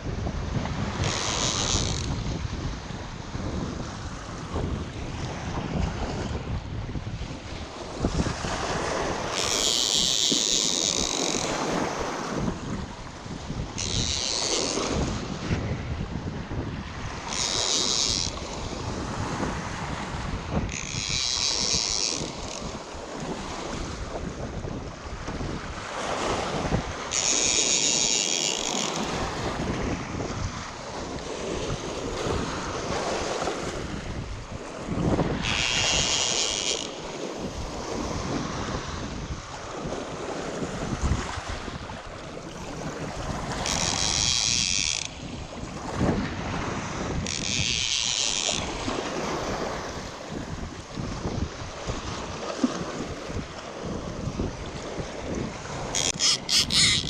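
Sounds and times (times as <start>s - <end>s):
wind buffeting microphone: 0.0s - 57.0s
high buzzing call: 55.9s - 57.0s.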